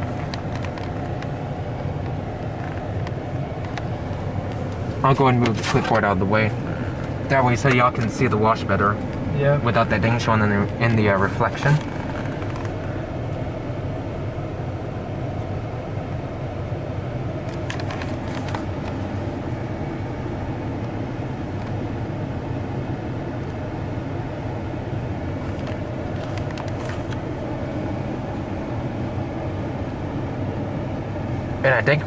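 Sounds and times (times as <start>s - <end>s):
clicks and rattles: 0.0s - 1.4s, 17.5s - 19.0s
truck engine idling: 0.0s - 32.0s.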